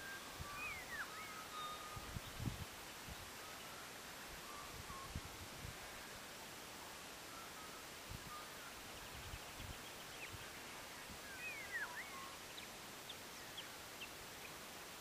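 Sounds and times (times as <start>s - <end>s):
bird chirps: 0.0s - 2.4s, 11.3s - 14.5s
swooping whistled bird notes: 0.0s - 2.4s, 11.2s - 12.7s
steady outdoor hiss: 0.0s - 15.0s.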